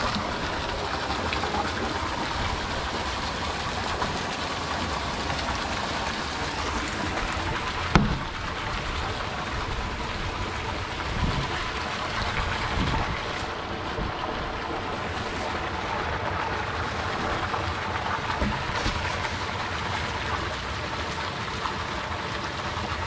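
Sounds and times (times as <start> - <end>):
sharp knock: 7.9 - 8.3.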